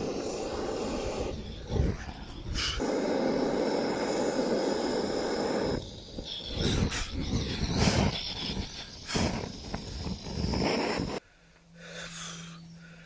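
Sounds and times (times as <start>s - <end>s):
blowtorch flame rushing: 0.0s - 11.2s.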